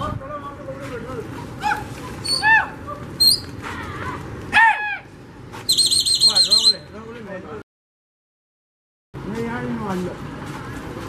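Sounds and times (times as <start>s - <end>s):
birds calling: 1.3s - 3.9s, 4.6s - 7.1s
fast high bird trill: 5.7s - 7.0s.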